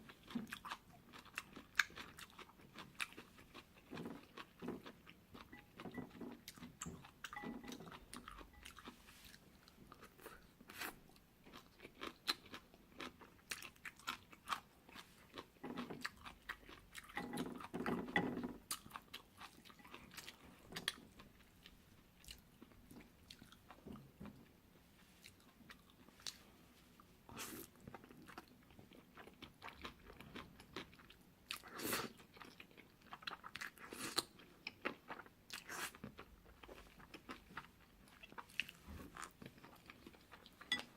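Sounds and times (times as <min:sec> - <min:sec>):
chewing noodles: 0:00.0 - 0:23.9.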